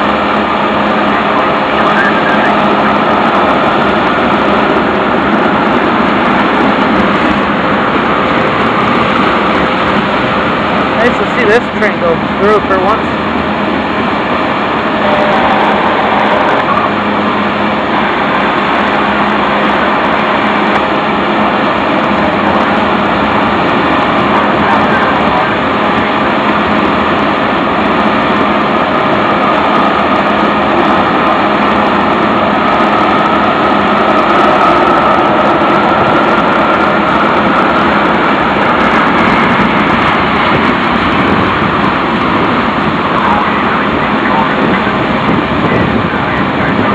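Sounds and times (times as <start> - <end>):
faint high whine: 0.0 - 8.3
steel wheels rolling on rail: 0.0 - 46.9.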